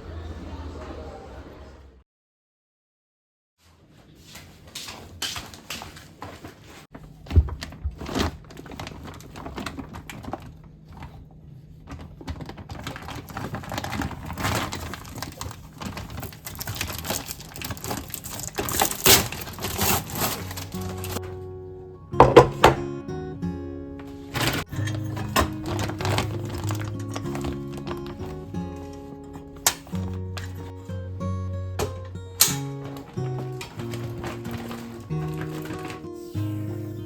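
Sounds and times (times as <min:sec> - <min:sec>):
items and packaging handled: 0:03.6 - 0:21.5, 0:22.2 - 0:22.8, 0:24.0 - 0:37.0
faint background music: 0:16.8 - 0:37.0.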